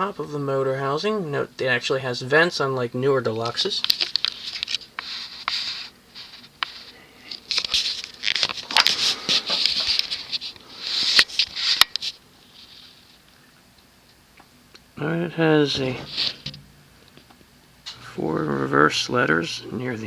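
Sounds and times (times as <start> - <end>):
rustling and scraping: 3.8 - 13.6, 15.7 - 18.0.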